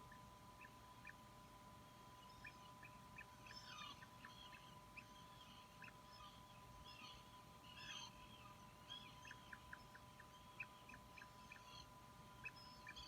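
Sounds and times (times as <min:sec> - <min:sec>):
bird chick peeping: 0:00.0 - 0:13.0.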